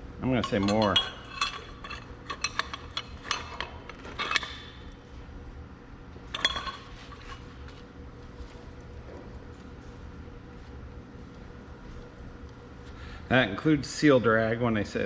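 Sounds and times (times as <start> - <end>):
low steady hum: 0.0 - 15.0
metal tools clinking: 0.3 - 4.8, 6.3 - 7.5.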